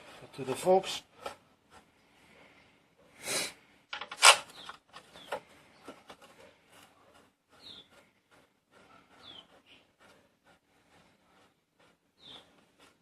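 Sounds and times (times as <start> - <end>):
bolt handling clicks and scrapes: 3.9 - 6.4
rasping scrape: 4.2 - 13.0.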